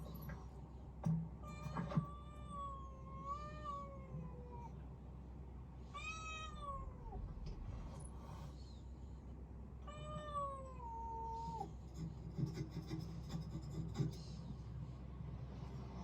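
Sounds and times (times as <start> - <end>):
cat meowing: 1.4 - 4.8, 6.0 - 7.2, 9.8 - 11.7.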